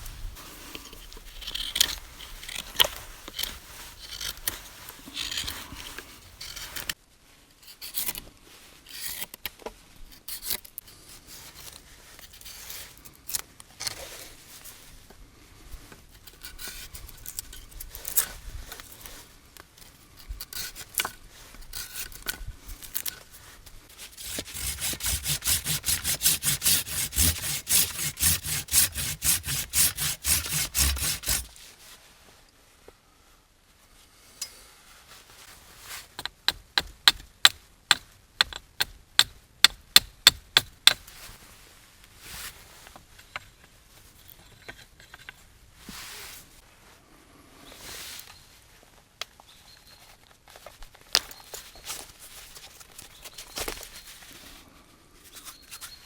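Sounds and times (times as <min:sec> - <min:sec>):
hand tool scraping wood: 0:00.8 - 0:07.0, 0:23.9 - 0:31.7, 0:55.3 - 0:56.0
rhythmic rasping strokes: 0:24.0 - 0:31.5.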